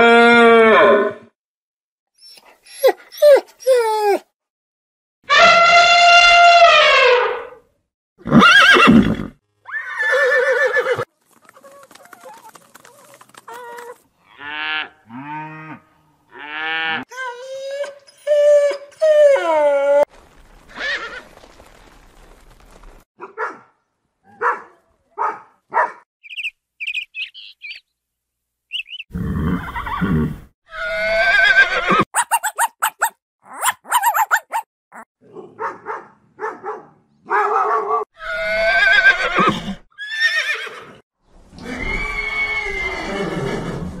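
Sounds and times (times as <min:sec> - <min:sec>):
horses neighing: 0:08.2 - 0:14.8, 0:29.1 - 0:32.5, 0:38.3 - 0:41.0
short dog sounds: 0:32.2 - 0:35.0.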